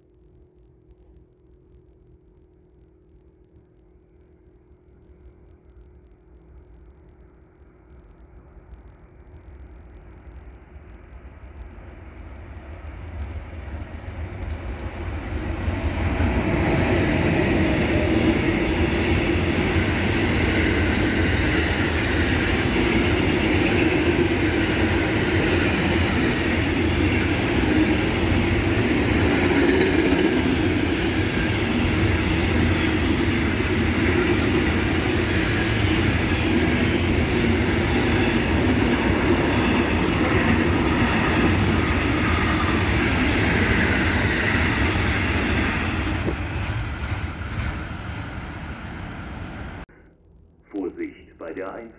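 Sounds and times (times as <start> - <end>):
freight train passing: 8.6 - 49.8
train wheels rumbling on rails: 9.1 - 49.8.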